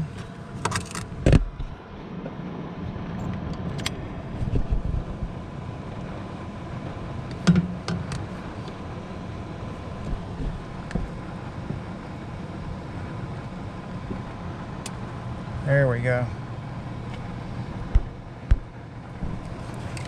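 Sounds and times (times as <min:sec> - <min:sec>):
hvac equipment hum: 0:00.0 - 0:20.0
sharp clicks and knocks: 0:07.3 - 0:08.2.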